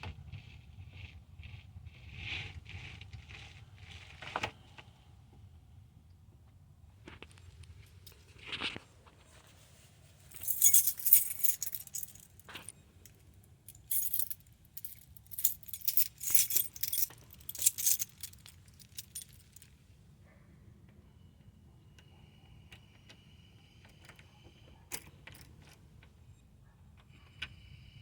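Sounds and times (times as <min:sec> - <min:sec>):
keys jangling: 0:10.3 - 0:19.7.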